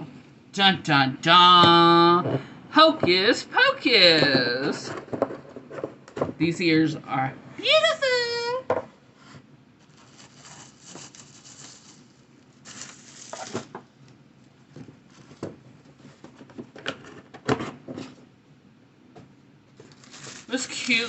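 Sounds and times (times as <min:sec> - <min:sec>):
box and paper rustling: 0:09.8 - 0:13.8, 0:14.7 - 0:18.2, 0:19.8 - 0:21.0.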